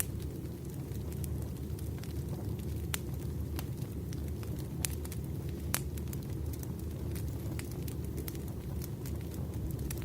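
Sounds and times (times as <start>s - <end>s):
burning wood rumble: 0.0s - 10.0s
fire snaps and pops: 0.0s - 10.0s.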